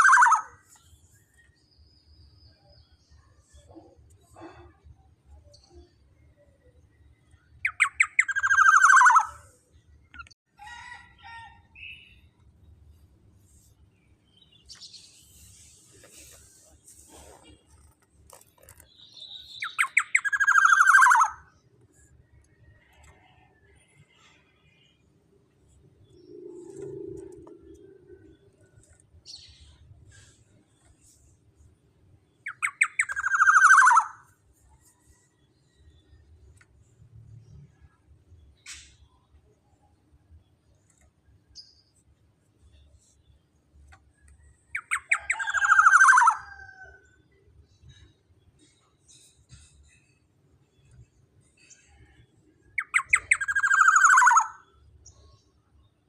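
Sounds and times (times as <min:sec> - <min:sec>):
bird calling with harsh rattle: 0:00.0 - 0:01.4, 0:07.6 - 0:09.5, 0:14.7 - 0:21.6, 0:32.4 - 0:34.3, 0:44.5 - 0:47.1, 0:52.8 - 0:54.8.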